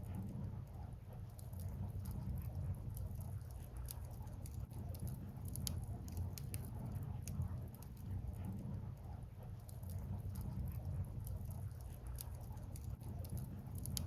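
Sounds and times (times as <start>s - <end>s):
steady low rumble: 0.0s - 14.0s
bonfire crackling and popping: 1.4s - 8.2s, 9.7s - 14.0s.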